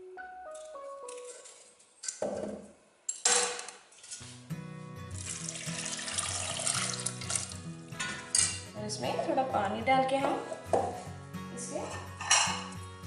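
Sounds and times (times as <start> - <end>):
background music: 0.0 - 1.8, 4.2 - 13.0
water pouring into a pot: 5.1 - 7.6.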